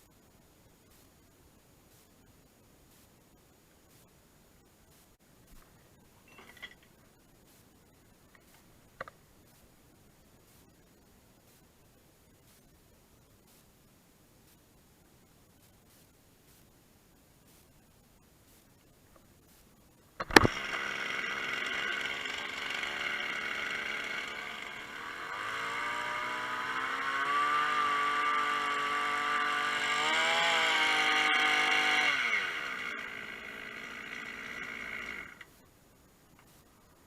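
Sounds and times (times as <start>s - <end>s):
brush cutter engine revving: 20.2s - 35.5s.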